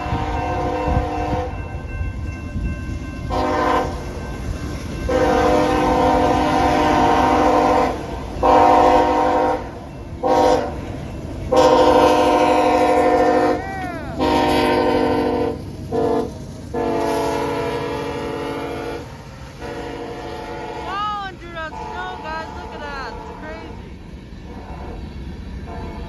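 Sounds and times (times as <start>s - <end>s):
locomotive air horn blasts: 0.0s - 1.6s, 3.3s - 4.0s, 5.1s - 10.8s, 11.5s - 23.8s.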